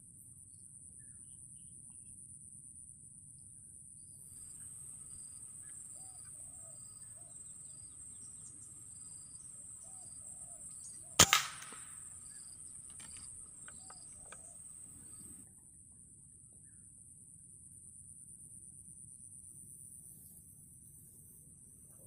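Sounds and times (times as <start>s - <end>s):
high insect drone: 4.3s - 15.4s
air rifle shot crack: 11.1s - 15.3s.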